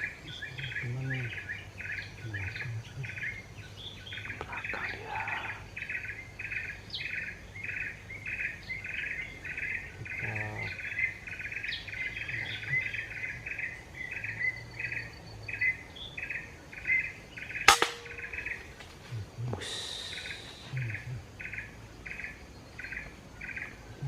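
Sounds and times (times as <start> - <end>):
insect buzzy chirping: 0.0 - 24.0
short sharp insect chirps: 19.6 - 23.1.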